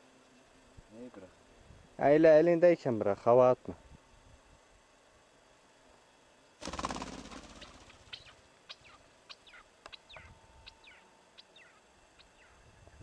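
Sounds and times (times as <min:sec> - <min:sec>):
bird wings flapping: 0:06.6 - 0:08.4.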